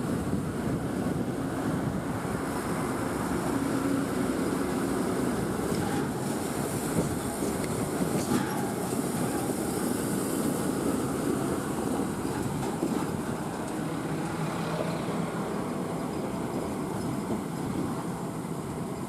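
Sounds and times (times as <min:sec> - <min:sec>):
diesel lorry engine rumbling: 0:00.0 - 0:19.0.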